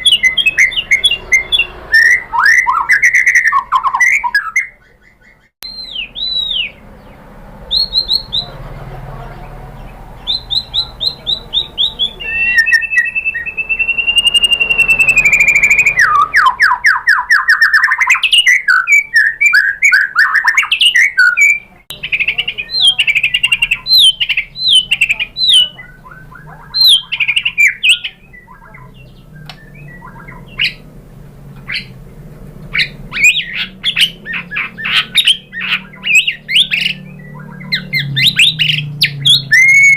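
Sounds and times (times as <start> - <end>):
bird singing whistles and trills: 0.0 - 8.6, 9.8 - 30.9, 32.7 - 39.9.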